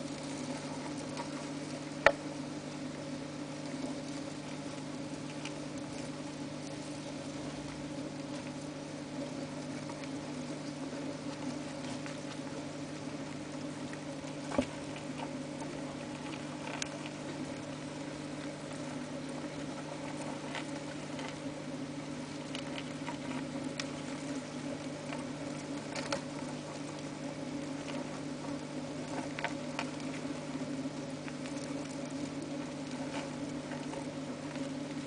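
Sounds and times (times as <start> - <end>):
steady low hum: 0.0 - 35.0
crickets scratching and clicking: 9.4 - 35.0.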